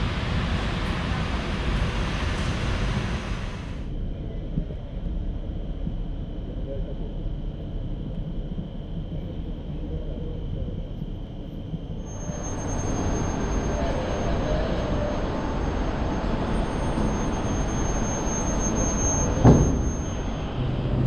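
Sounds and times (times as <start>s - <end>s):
train rumble and hiss: 0.0s - 4.8s, 12.1s - 21.0s
thin high whine: 12.0s - 21.0s
sharp metallic clank: 19.2s - 20.4s.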